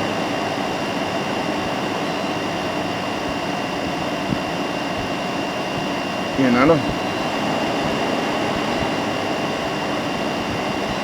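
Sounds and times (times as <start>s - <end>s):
air conditioner running: 0.0s - 11.0s.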